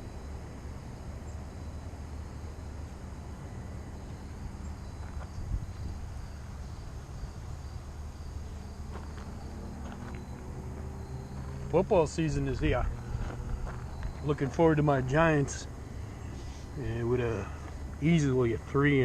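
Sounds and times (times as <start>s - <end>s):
insects trilling: 0.0s - 19.0s
wind rumble on microphone: 4.8s - 7.6s.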